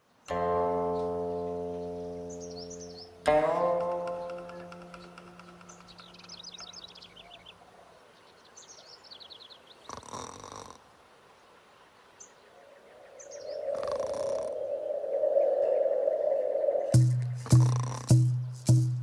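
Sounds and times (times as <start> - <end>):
small birds chirping in trills: 0.0 - 19.0.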